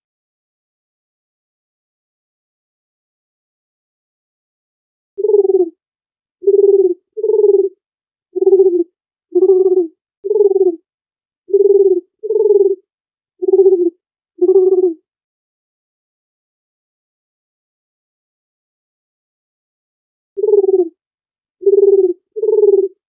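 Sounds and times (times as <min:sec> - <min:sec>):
dove cooing: 0:05.2 - 0:05.8, 0:06.4 - 0:07.8, 0:08.4 - 0:10.8, 0:11.5 - 0:12.8, 0:13.4 - 0:15.0, 0:20.4 - 0:21.0, 0:21.6 - 0:23.0.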